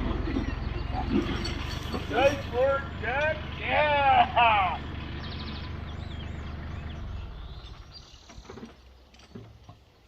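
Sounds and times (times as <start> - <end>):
small birds chirping: 0.0 - 10.0
tractor engine running: 0.0 - 10.0.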